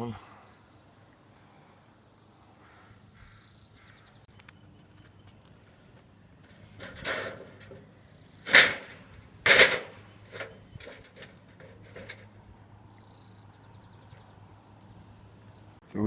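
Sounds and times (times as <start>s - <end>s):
bird trilling: 2.6s - 4.7s, 8.0s - 9.2s, 12.9s - 14.5s
knocks on sheet metal: 9.5s - 9.9s.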